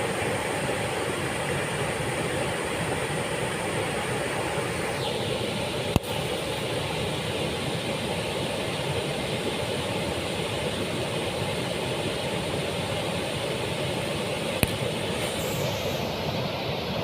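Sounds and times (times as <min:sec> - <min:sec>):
waterfall rushing: 0:11.6 - 0:17.0.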